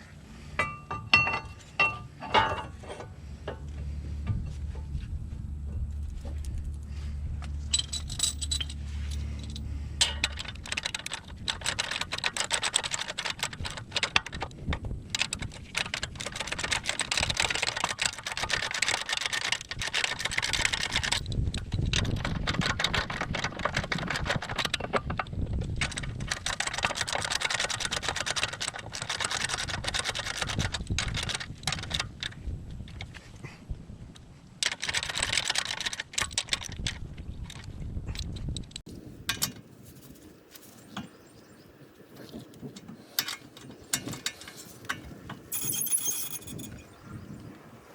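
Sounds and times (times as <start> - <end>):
steady low hum: 0.0 - 11.5
low rumble: 3.1 - 10.3.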